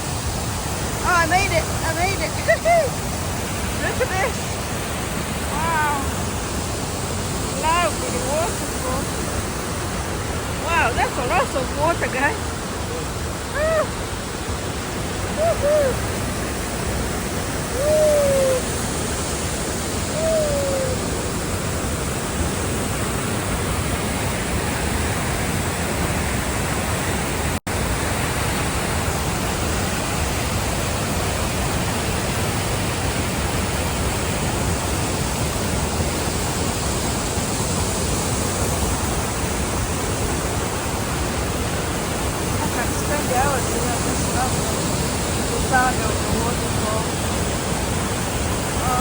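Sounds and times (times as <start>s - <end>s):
person whooping: 13.5s - 14.0s, 15.3s - 16.2s, 17.6s - 18.8s, 20.1s - 21.3s.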